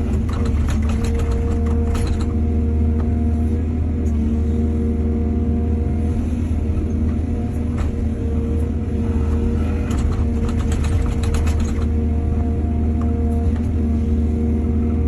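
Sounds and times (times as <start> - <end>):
rapid rattling and clatter: 0.0 - 2.4, 9.7 - 12.0
diesel engine running: 0.0 - 15.0.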